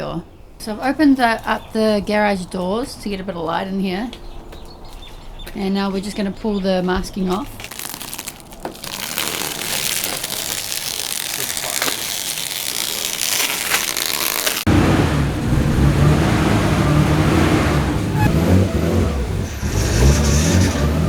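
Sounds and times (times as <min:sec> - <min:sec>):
tape tearing and crinkling: 0:07.4 - 0:14.7
car engine running: 0:14.6 - 0:21.0.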